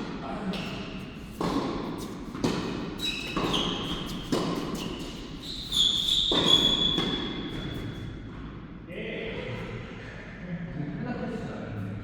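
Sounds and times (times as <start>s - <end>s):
shoe squeaks on court: 3.0s - 7.8s.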